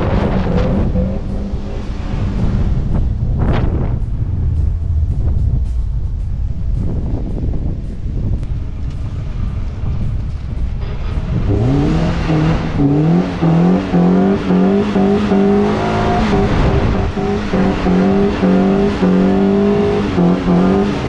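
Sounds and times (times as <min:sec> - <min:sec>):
car engine revving hard: 0:00.0 - 0:03.9, 0:10.8 - 0:21.0
gravel and sand spraying: 0:00.0 - 0:21.0.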